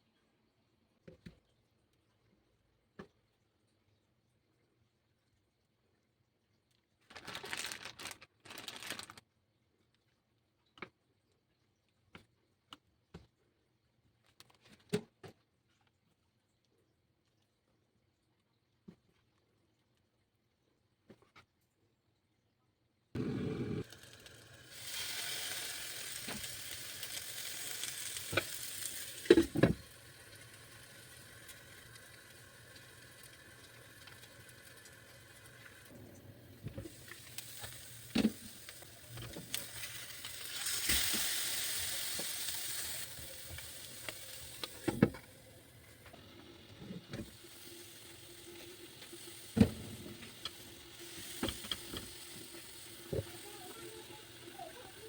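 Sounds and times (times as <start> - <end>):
food sizzling in a pan: 23.2 - 55.0.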